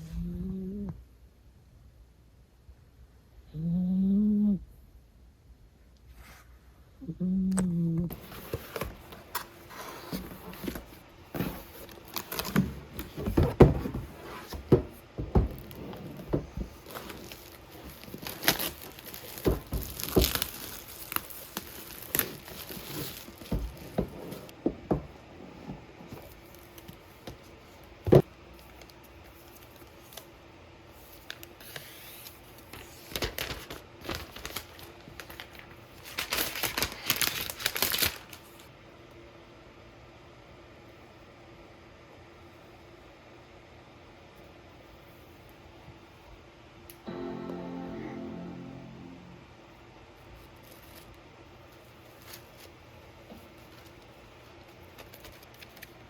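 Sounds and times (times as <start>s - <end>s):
packaging crinkling and tearing: 11.6s - 13.3s, 16.7s - 24.0s, 31.2s - 38.7s, 54.6s - 56.0s.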